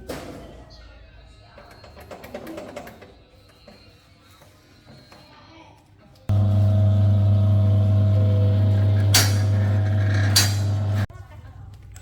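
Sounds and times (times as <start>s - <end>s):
engine drone: 6.3s - 11.1s.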